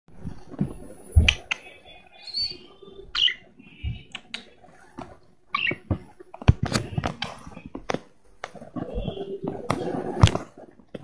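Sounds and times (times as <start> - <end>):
cage birds chirping: 0.8 - 7.7.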